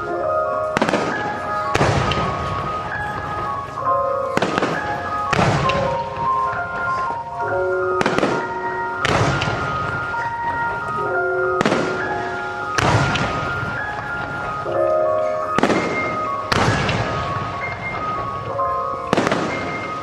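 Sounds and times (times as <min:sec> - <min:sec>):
fireworks bursting with echoes: 0:00.0 - 0:20.0
melodic music: 0:00.0 - 0:20.0.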